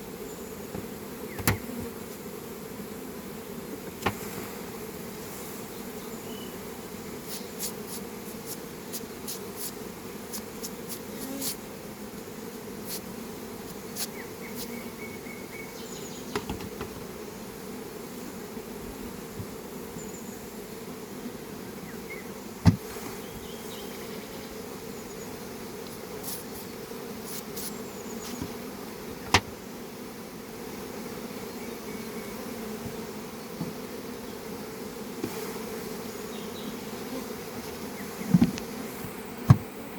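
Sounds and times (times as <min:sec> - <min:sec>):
bees buzzing: 0:00.0 - 0:39.9
louder knocks: 0:22.6 - 0:22.8, 0:29.2 - 0:29.6, 0:39.5 - 0:39.7.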